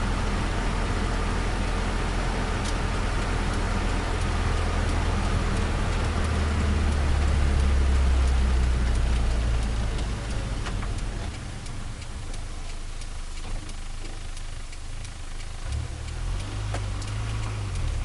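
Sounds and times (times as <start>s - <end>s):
car engine low drone: 0.0s - 18.0s.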